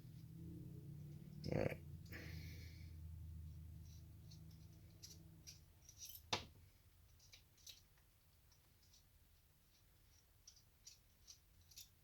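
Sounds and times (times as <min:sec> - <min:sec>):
small metal tools clicking: 0:03.8 - 0:06.4, 0:07.0 - 0:12.0.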